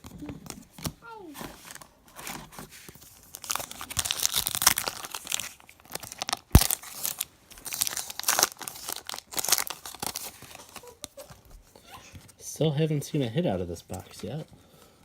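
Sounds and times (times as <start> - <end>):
foil wrappers tearing and crinkling: 1.5 - 11.4.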